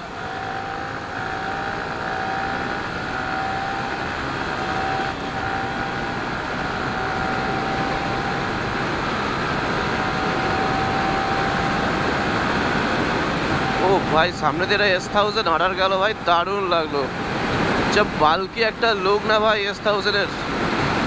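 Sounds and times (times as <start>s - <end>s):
motorcycle engine at high revs: 0.0s - 21.0s.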